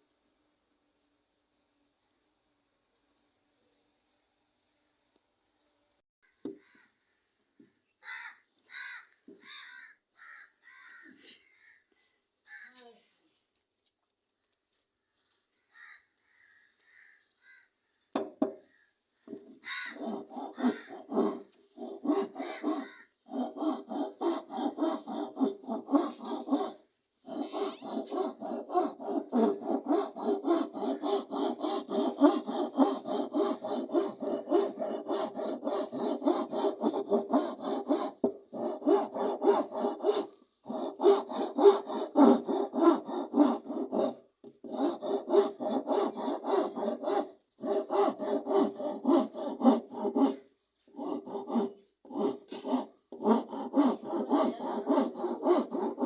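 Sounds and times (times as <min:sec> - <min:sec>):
hand tool rasping wood: 0:19.3 - 0:56.0.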